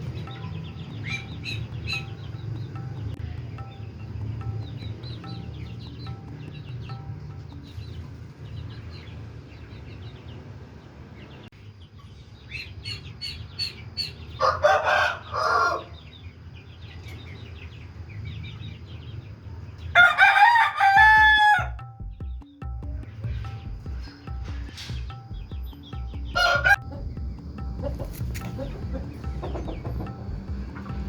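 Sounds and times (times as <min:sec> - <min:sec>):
small birds chirping: 0:00.0 - 0:20.2, 0:21.0 - 0:31.0
rooster crowing: 0:14.4 - 0:16.0, 0:19.9 - 0:21.8, 0:26.4 - 0:27.0.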